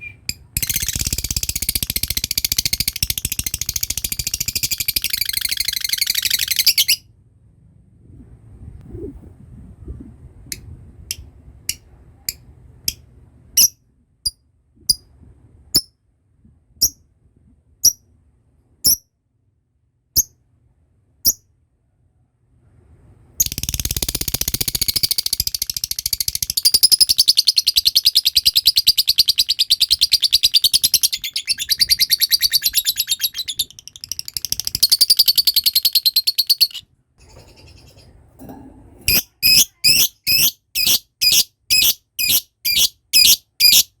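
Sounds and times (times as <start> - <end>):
lovebird chirping and trilling: 0.0 - 7.0, 13.6 - 13.8, 23.4 - 38.0, 39.1 - 44.0.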